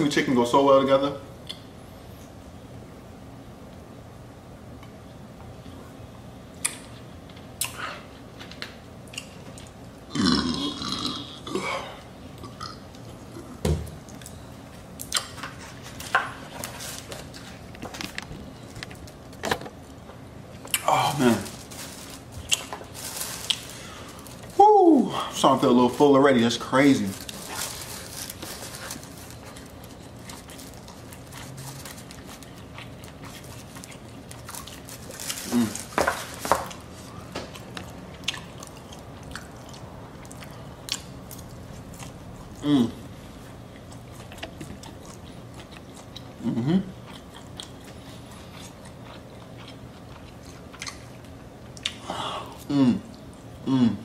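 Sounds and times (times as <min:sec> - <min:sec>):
low steady hum: 0:00.0 - 0:54.0
person burping loudly: 0:10.1 - 0:12.8.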